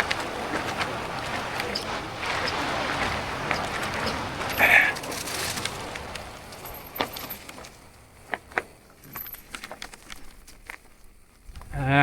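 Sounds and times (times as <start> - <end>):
tyre and wind rush: 0.0 - 12.0
bike metallic clicks and rattles: 5.1 - 11.1.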